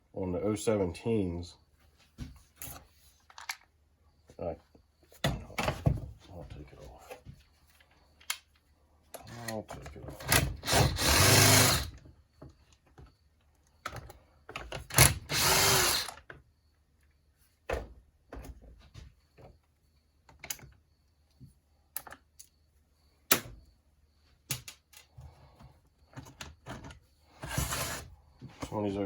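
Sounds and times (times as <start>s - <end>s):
clicks and knocks of parts: 2.6s - 3.8s, 7.1s - 10.7s, 20.2s - 22.6s, 24.4s - 25.3s
cordless drill running: 10.3s - 11.9s, 14.9s - 16.2s, 27.4s - 28.0s.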